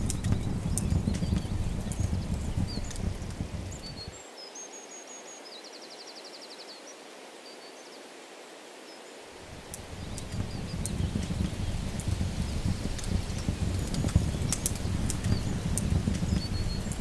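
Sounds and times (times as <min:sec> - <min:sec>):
low rumble: 0:00.0 - 0:04.1, 0:09.5 - 0:17.0
breeze hissing: 0:00.0 - 0:04.2, 0:09.4 - 0:17.0
songbirds singing: 0:00.0 - 0:05.6, 0:09.4 - 0:17.0.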